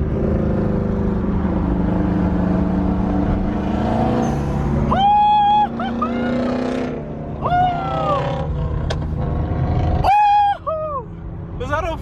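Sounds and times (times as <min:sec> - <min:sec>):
car engines rumbling and revving: 0:00.0 - 0:12.0.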